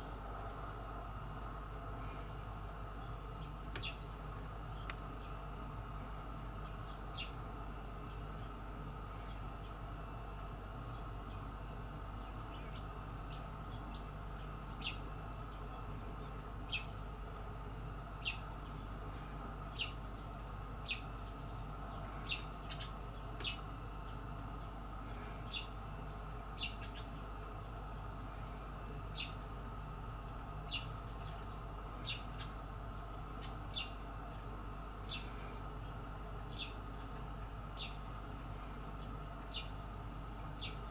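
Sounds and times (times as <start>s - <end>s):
faint low hum: 0.0s - 40.9s
bird chirping: 3.0s - 5.4s, 18.0s - 18.9s, 20.8s - 24.8s, 25.5s - 27.2s, 29.1s - 29.5s, 30.1s - 32.7s, 33.4s - 38.4s, 39.0s - 39.8s, 40.6s - 40.9s.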